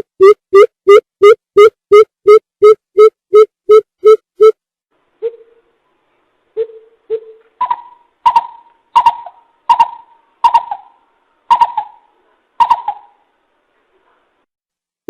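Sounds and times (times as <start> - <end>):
bird deep hooting call: 6.6 - 13.2.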